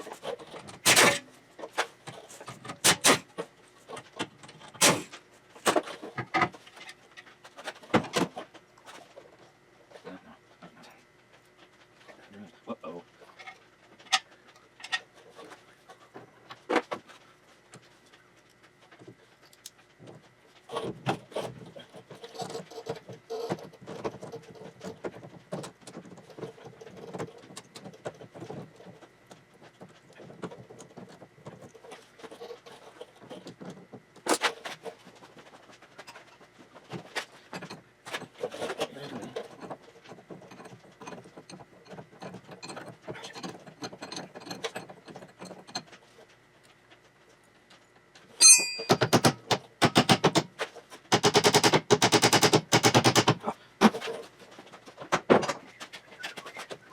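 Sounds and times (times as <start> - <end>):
metal tools clinking and knocking: 48.4 - 50.4.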